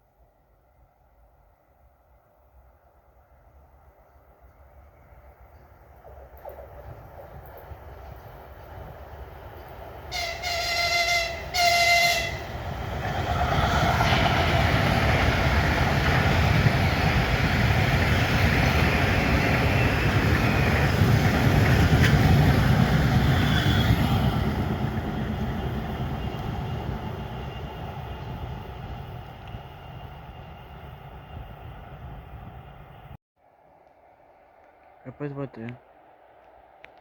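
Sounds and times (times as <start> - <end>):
train rumbling past: 0.0 - 33.2
train horn blasts: 10.1 - 12.6.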